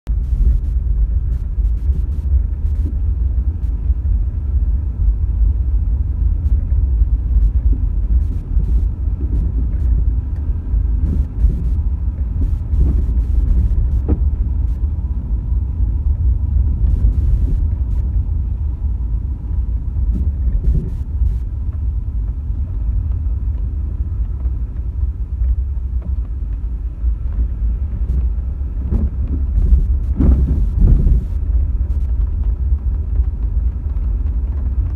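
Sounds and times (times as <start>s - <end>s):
car road and engine rumble: 0.0s - 34.9s.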